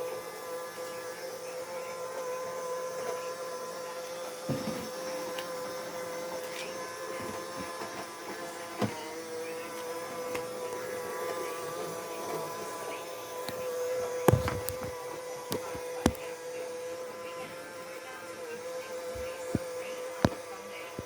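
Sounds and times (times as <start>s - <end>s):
robot vacuum cleaner whirring: 0.0s - 21.0s
sharp knocks: 14.3s - 14.9s.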